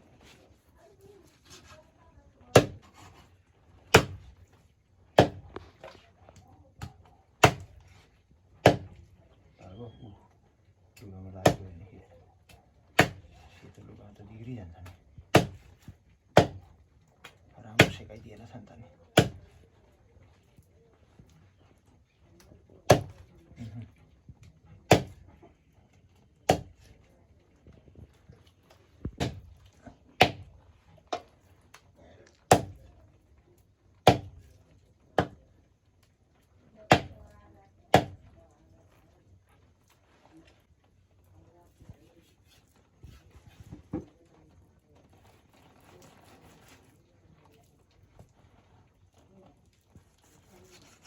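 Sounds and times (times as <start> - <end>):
blade chopping raw chicken: 2.5 - 2.9, 4.0 - 4.3, 5.2 - 5.6, 7.4 - 7.8, 8.6 - 9.0, 11.4 - 11.7, 13.0 - 13.3, 15.4 - 15.7, 16.4 - 16.7, 17.8 - 18.0, 19.2 - 19.5, 22.9 - 23.2, 24.9 - 25.2, 26.5 - 26.8, 29.2 - 29.5, 30.2 - 30.5, 32.5 - 32.8, 34.1 - 34.4, 35.2 - 35.4, 36.9 - 37.2, 38.0 - 38.2.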